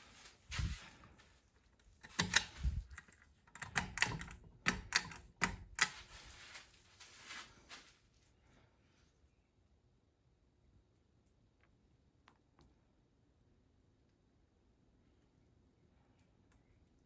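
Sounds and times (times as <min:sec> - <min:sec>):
sharp clicks and light knocks: 0:01.8 - 0:06.2.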